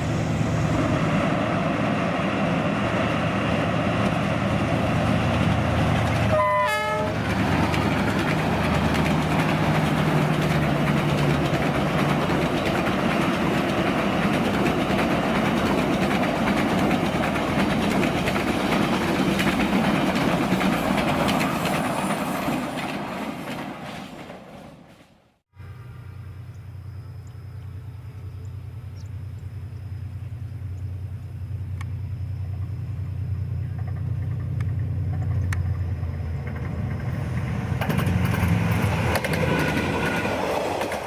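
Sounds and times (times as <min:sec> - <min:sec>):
train rumbling on rails: 0:00.0 - 0:41.0
train horn blast: 0:06.3 - 0:07.2.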